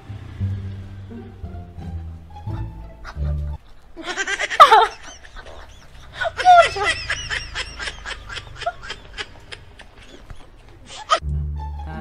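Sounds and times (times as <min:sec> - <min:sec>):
person laughing: 0:03.1 - 0:11.2.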